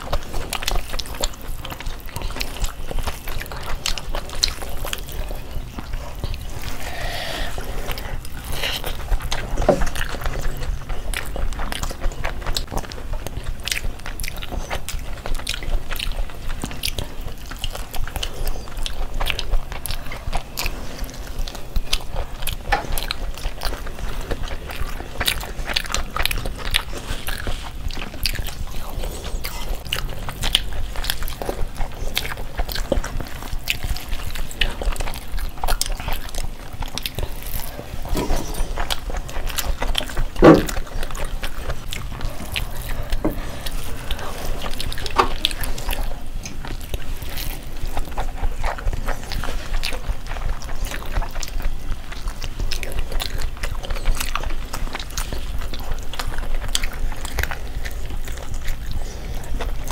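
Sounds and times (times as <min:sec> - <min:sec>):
people chewing food: 0:00.0 - 0:59.9.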